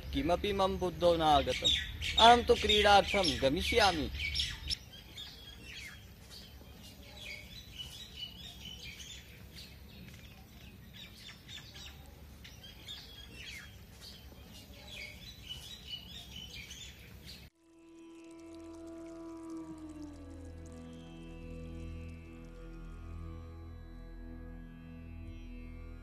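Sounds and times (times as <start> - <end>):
small birds chirping: 0.0 - 17.5.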